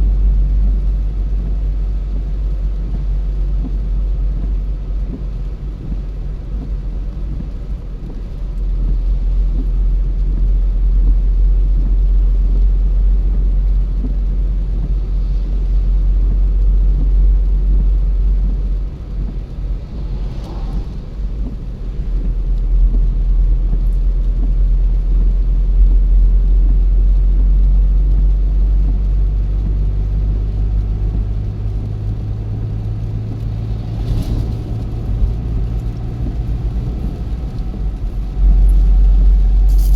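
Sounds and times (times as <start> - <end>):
car engine and tyres rumbling: 0.0 - 39.9
brief whoosh: 19.5 - 22.0.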